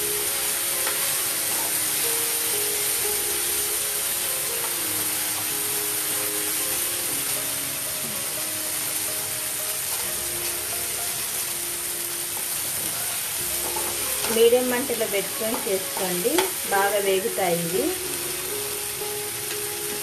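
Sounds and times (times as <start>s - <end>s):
quiet background music: 0.0s - 20.0s
vegetables sizzling in hot oil: 0.0s - 20.0s.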